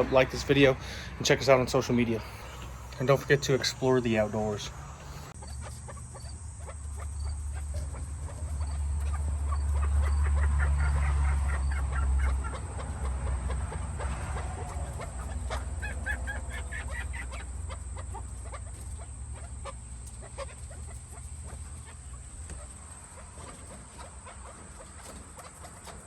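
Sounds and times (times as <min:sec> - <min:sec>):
partridges clucking calls: 0:00.0 - 0:26.0.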